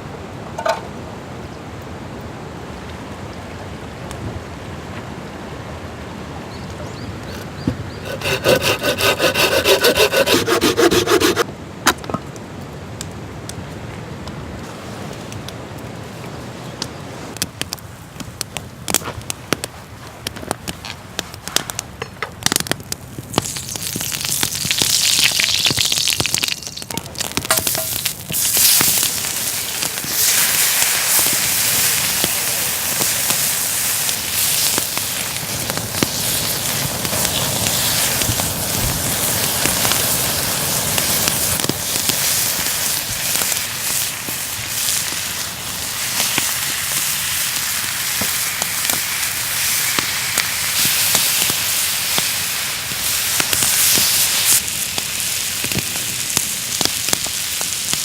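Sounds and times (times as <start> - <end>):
ribs sizzling in hot oil: 23.3 - 58.0.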